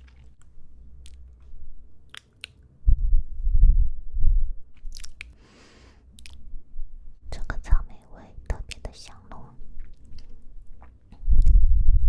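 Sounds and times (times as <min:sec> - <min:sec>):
muffled chewing: 0:00.0 - 0:02.6, 0:04.7 - 0:05.4, 0:06.1 - 0:06.4, 0:08.5 - 0:11.6
wet mouth clicks: 0:01.0 - 0:01.2, 0:02.1 - 0:02.6, 0:04.8 - 0:05.4, 0:06.1 - 0:06.4, 0:08.5 - 0:11.6.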